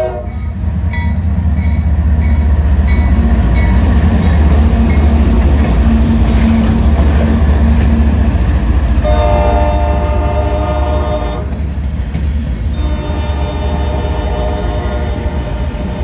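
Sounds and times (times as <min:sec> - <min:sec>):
locomotive air horn blast: 0:00.0 - 0:00.5, 0:09.0 - 0:11.6, 0:12.7 - 0:16.0
diesel locomotive rumbling: 0:00.0 - 0:16.0.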